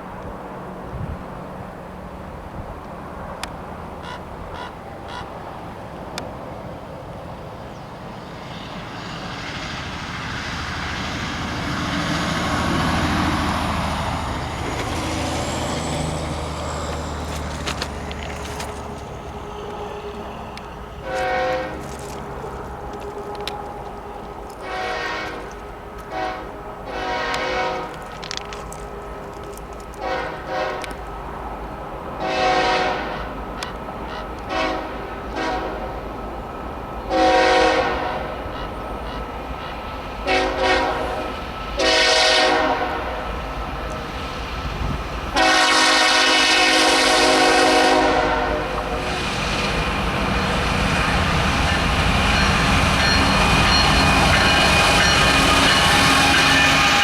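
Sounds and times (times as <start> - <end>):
train rumbling: 0.0 - 57.0
locomotive air horn blasts: 19.4 - 22.0, 22.8 - 28.1, 30.0 - 31.0, 32.2 - 33.4, 34.5 - 36.0, 37.1 - 38.6, 40.2 - 43.4, 45.4 - 49.1, 53.4 - 57.0.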